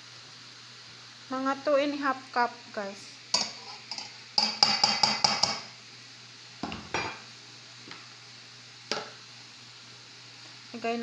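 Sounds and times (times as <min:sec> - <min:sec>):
utensils clinking against a bowl: 0:03.4 - 0:05.7.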